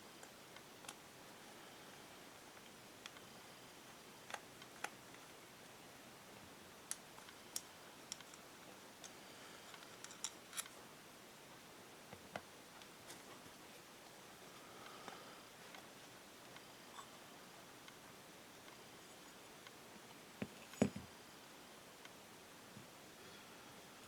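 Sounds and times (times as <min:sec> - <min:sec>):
light clicks and taps of tools: 0:06.9 - 0:10.8.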